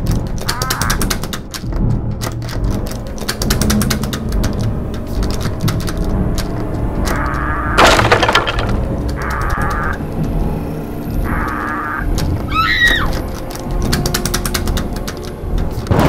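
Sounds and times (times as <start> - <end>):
irregular clicks and cracks: 0.0 - 10.4, 11.5 - 16.0
loud crash: 7.8 - 8.9.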